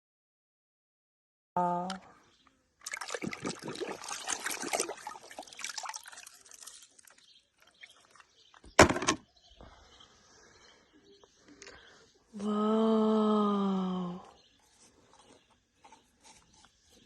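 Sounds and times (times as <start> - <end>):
water spraying and splashing: 2.8 - 8.2.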